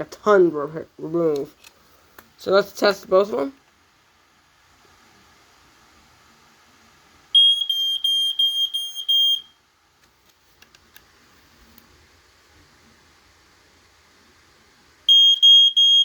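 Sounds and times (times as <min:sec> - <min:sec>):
smoke alarm beeping: 0:07.3 - 0:09.6, 0:15.1 - 0:16.0.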